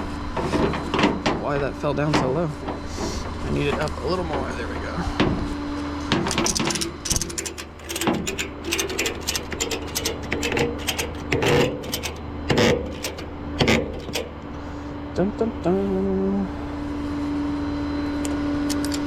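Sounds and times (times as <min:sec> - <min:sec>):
ratchet strap clicking: 0:06.3 - 0:14.4.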